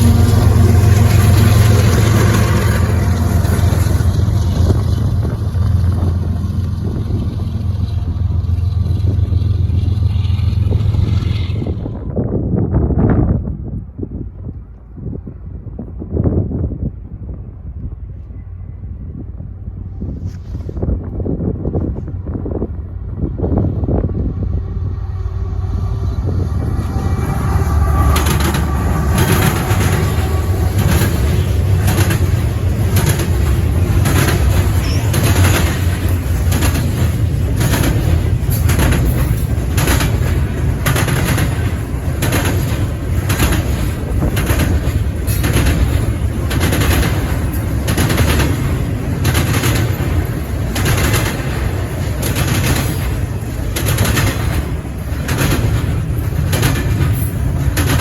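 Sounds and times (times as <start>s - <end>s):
train wheel clacks: 0.0s - 11.6s, 26.5s - 58.0s
train rumbling past: 0.0s - 58.0s.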